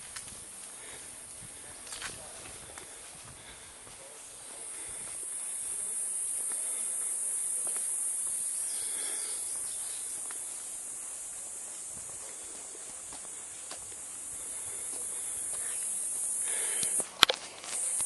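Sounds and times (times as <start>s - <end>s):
insect chorus buzzing: 0.0s - 18.0s
faint ticks: 16.8s - 18.0s.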